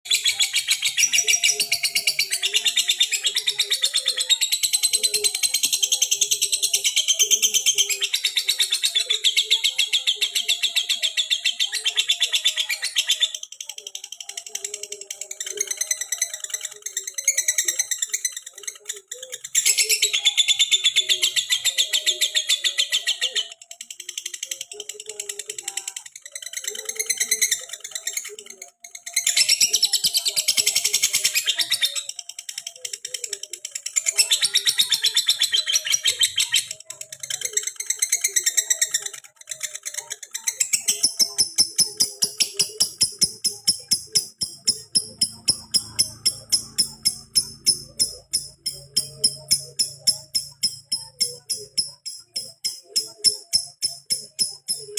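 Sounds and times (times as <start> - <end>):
lovebird chattering trills: 0.1 - 54.9
background music with shaker rhythm: 36.6 - 54.9.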